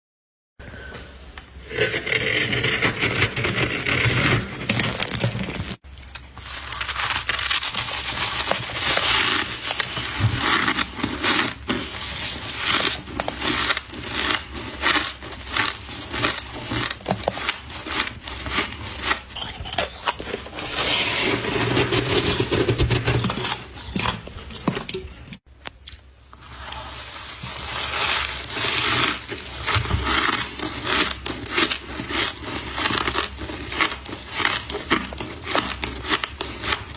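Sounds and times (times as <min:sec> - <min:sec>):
crunching and chewing frost: 0:04.2 - 0:20.8, 0:25.8 - 0:36.9.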